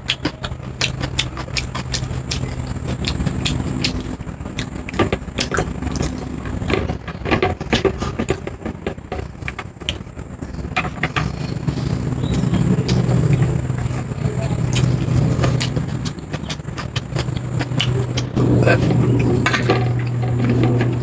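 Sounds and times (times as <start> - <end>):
chewing clicks and smacks: 0.0 - 6.9, 9.4 - 10.1, 12.2 - 20.9
steady low hum: 0.0 - 21.0.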